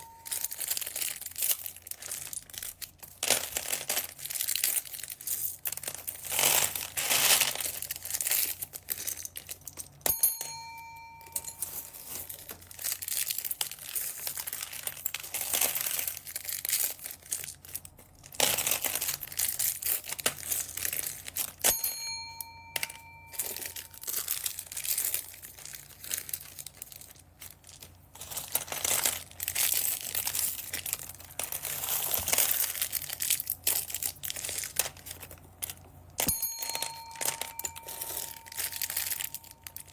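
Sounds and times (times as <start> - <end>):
bell-like ding: 0.0 - 0.6, 10.1 - 12.0, 21.7 - 24.1, 36.2 - 39.9
plastic bags crinkling: 0.0 - 10.0, 11.2 - 21.6, 22.8 - 39.9.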